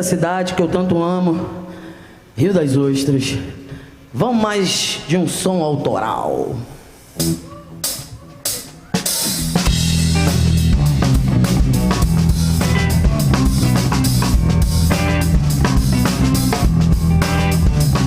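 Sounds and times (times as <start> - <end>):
live rock band playing: 7.2 - 18.0.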